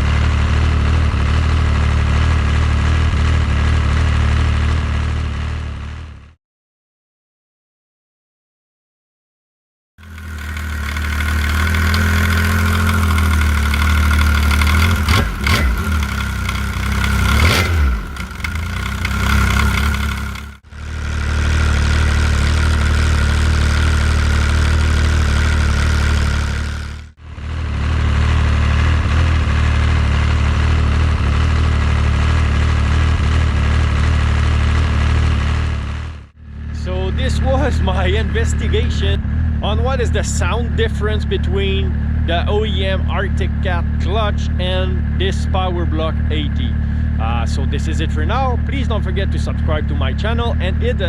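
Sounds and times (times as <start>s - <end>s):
snowmobile engine idling: 0.0s - 6.2s, 10.0s - 51.0s
engine revving: 0.0s - 6.3s, 10.0s - 51.0s.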